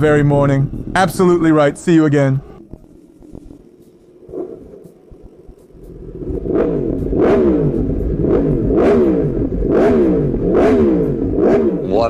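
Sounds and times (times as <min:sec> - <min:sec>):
motorcycle engine revving: 0:02.4 - 0:12.0.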